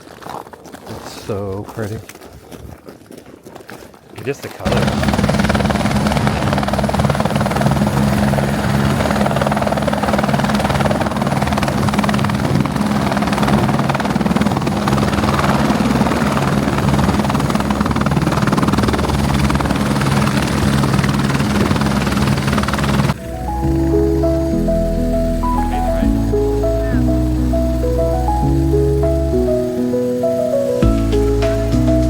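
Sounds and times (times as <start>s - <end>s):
helicopter rotor drone: 4.7s - 32.0s.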